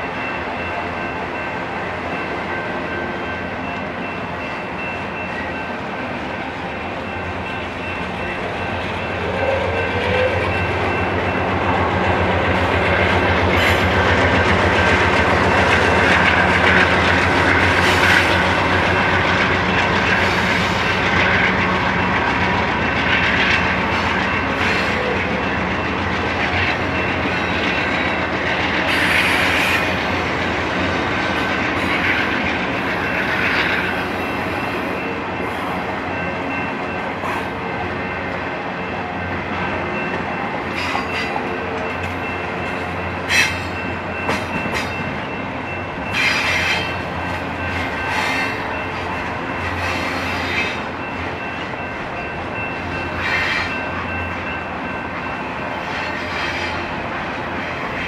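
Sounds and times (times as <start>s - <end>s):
freight train rolling by: 0.0s - 58.0s
high squeal of wheels on rail: 7.1s - 11.3s, 12.5s - 21.6s, 23.0s - 30.3s, 31.3s - 38.2s, 39.9s - 51.2s, 52.2s - 54.6s, 55.2s - 58.0s.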